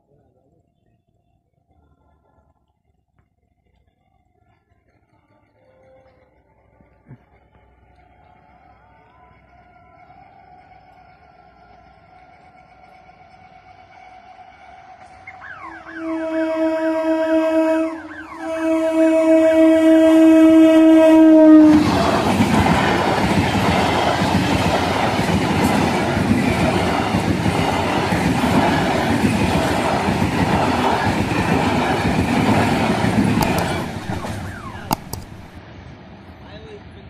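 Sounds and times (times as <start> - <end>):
train rumbling past: 8.4 - 37.0
train horn long note: 15.4 - 22.0
train wheel clatter: 21.9 - 35.6.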